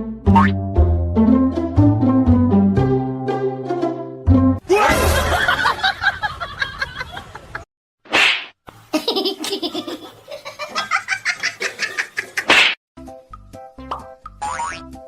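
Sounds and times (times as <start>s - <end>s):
people laughing: 4.8s - 7.6s, 9.0s - 12.5s.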